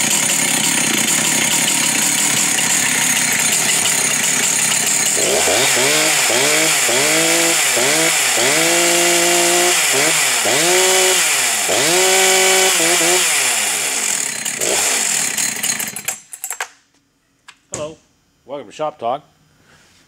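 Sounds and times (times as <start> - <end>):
chainsaw revving: 0.0 - 16.3.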